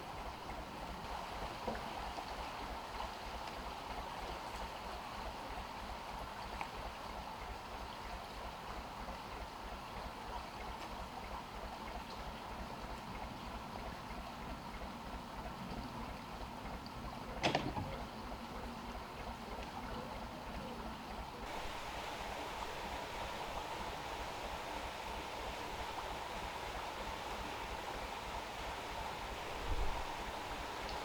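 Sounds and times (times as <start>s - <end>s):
flowing water: 0.0s - 31.0s.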